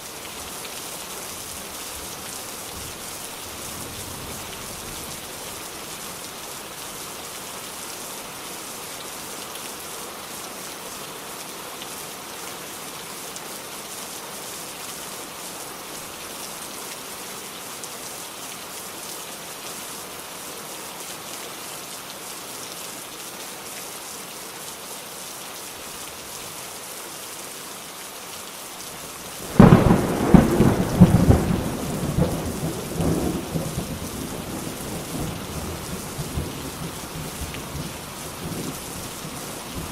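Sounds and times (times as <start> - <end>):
steady rain falling: 0.0 - 39.9
thunder clap rumbling: 29.4 - 35.3.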